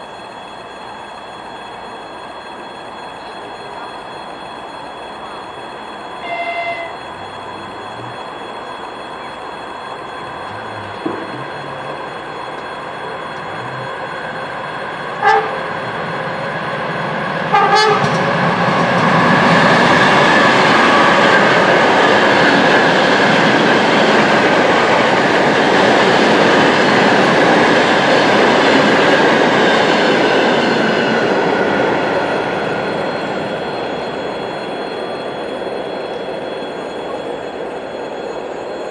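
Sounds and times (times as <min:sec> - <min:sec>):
locomotive rumble of engine and wheels: 0:00.0 - 0:38.9
locomotive horn toots: 0:06.2 - 0:08.1, 0:15.2 - 0:15.6, 0:17.5 - 0:18.2.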